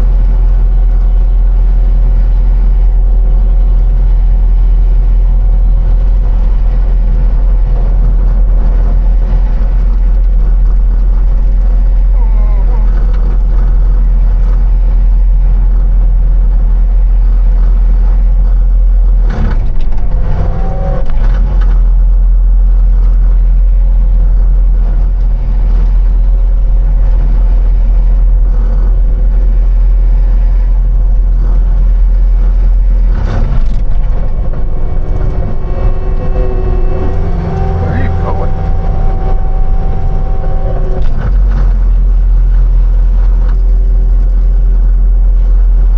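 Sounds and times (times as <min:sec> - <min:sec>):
vehicle engine running: 0:00.0 - 0:45.9.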